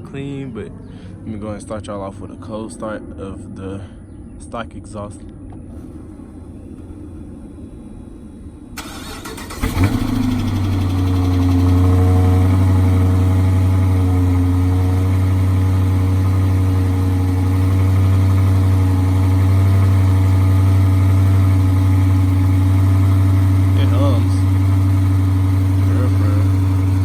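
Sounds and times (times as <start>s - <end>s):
car engine starting and idling: 5.5s - 27.0s
starter motor cranking: 8.8s - 12.2s.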